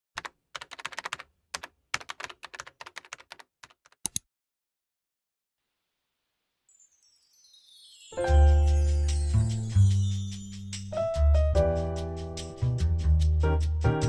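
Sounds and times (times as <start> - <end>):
keyboard typing: 0.2 - 4.2.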